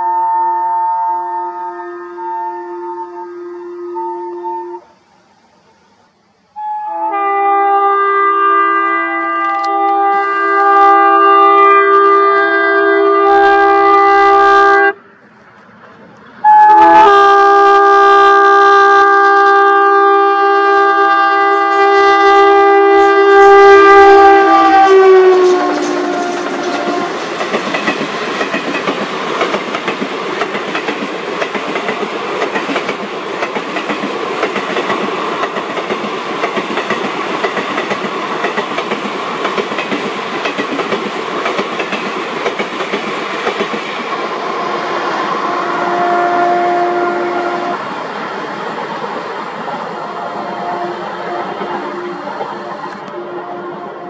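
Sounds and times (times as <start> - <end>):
locomotive air horn chord: 0.0 - 5.0, 6.5 - 15.0, 16.4 - 27.3, 44.6 - 47.8, 50.1 - 54.0
wheels clattering on rails: 24.9 - 44.3.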